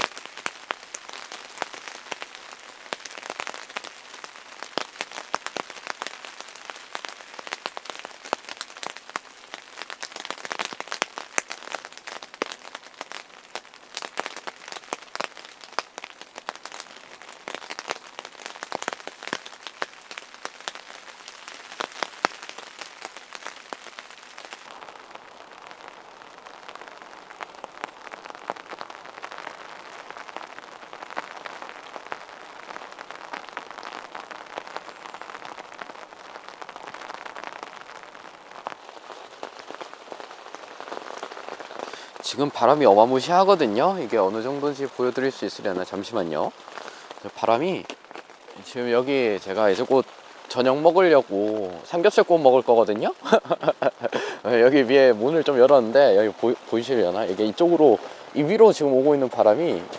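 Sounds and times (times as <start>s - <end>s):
rain patter: 0.0s - 59.9s
rushing hiss: 41.7s - 59.9s.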